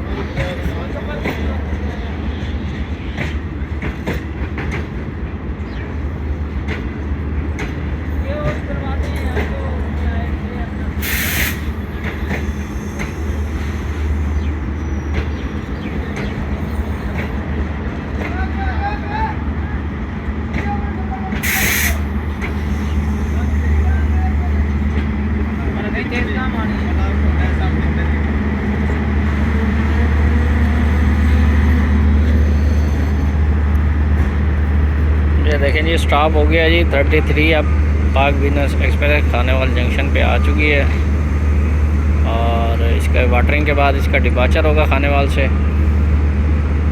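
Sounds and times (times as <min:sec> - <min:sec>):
locomotive engine hum: 0:00.0 - 0:46.9
train rumbling: 0:00.0 - 0:46.9
brief hiss: 0:11.0 - 0:11.7, 0:21.4 - 0:22.0.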